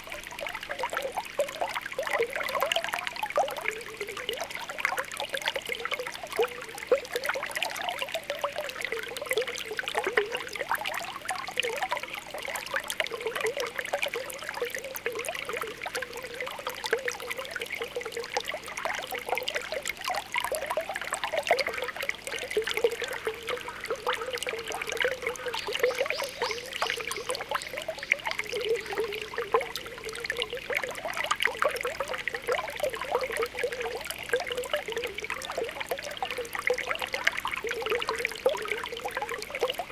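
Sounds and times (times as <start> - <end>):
spring water popping and bubbling: 0.0 - 39.9.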